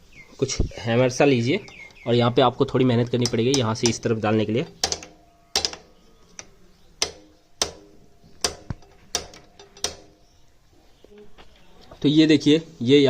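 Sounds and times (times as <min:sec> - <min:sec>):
hammer tapping on metal: 0:03.0 - 0:10.4.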